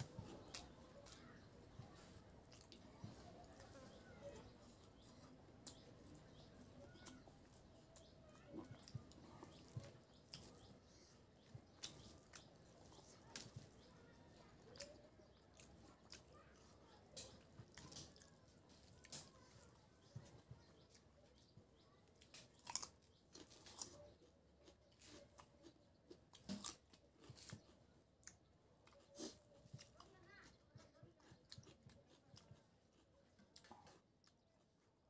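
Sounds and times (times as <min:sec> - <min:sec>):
person chewing: 0:00.0 - 0:04.0, 0:04.6 - 0:13.8, 0:22.1 - 0:35.0
crunchy cucumber bites: 0:22.1 - 0:29.1.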